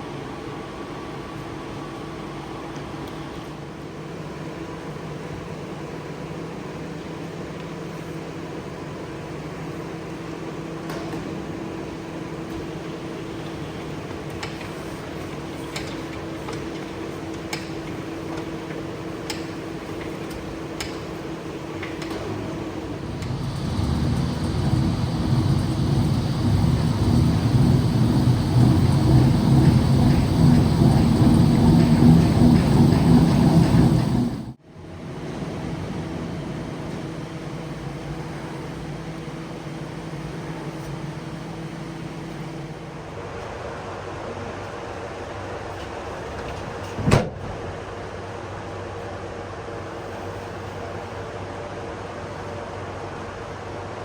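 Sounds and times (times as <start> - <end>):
low machine noise: 0.0 - 46.9
machine humming: 21.6 - 34.6.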